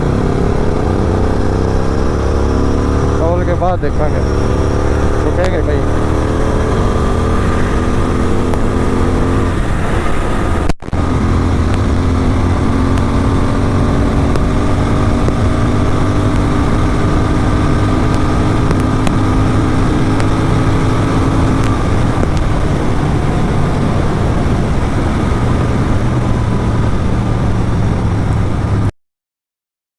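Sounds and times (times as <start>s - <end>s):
motorcycle exhaust rumble: 0.0s - 28.9s.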